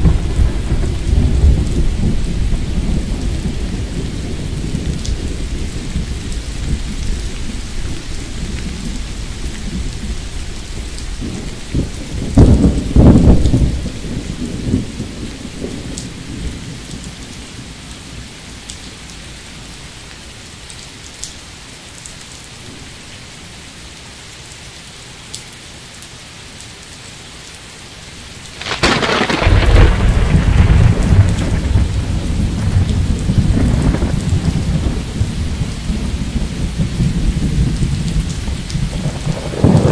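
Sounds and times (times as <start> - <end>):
thunder rumbling and cracking: 0.0 - 17.7, 28.6 - 39.9
rain hissing: 0.0 - 39.9.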